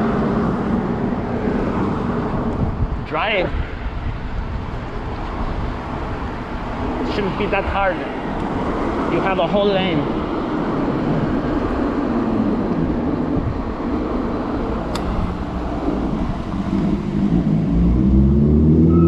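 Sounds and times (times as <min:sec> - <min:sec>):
street traffic noise: 0:00.0 - 0:19.0
wind rushing: 0:00.0 - 0:19.0
vehicle engine accelerating: 0:10.2 - 0:19.0.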